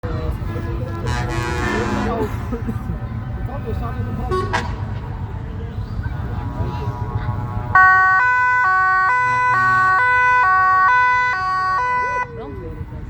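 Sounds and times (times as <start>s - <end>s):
vehicle engine rumble: 0.0s - 13.0s
two-tone siren: 7.7s - 12.4s.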